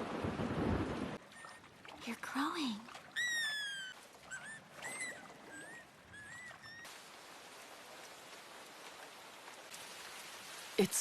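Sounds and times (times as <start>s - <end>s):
creature whistling chirps: 3.2s - 6.9s
rain hiss: 6.9s - 11.0s.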